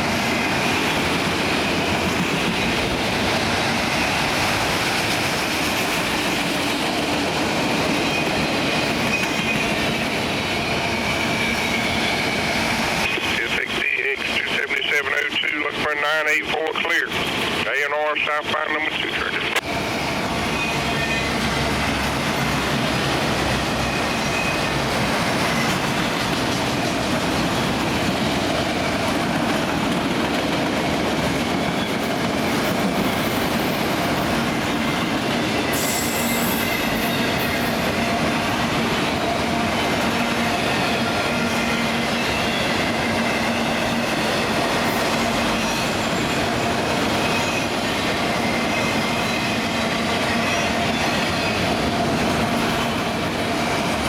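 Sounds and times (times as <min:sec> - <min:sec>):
wheels clattering on rails: 0:20.3 - 0:39.2.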